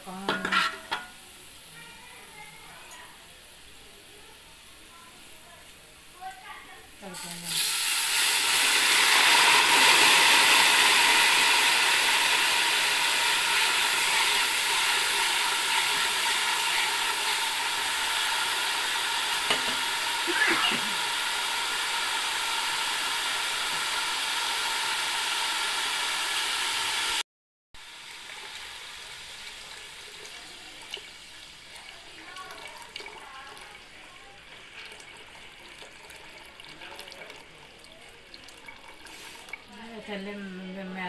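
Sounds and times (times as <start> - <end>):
onions sizzling in a pot: 0.0 - 27.2, 27.8 - 41.0
spoon knocking against pot: 0.2 - 1.2, 19.5 - 19.9
water being poured: 34.5 - 39.8.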